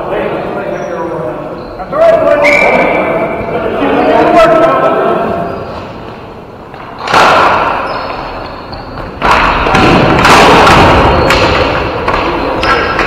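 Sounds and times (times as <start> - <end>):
loud echoing thuds: 6.7 - 8.2, 9.0 - 13.0.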